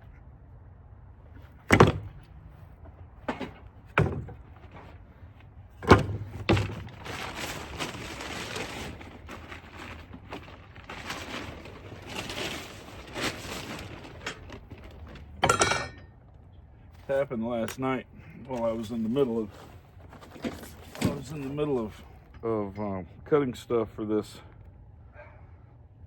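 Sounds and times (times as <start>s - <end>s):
scraping and rustling: 1.3s - 16.1s, 18.5s - 22.3s.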